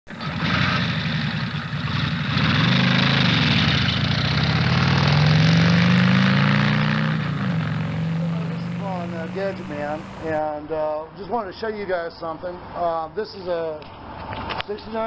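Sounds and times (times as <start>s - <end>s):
car engine revving: 0.1s - 10.4s.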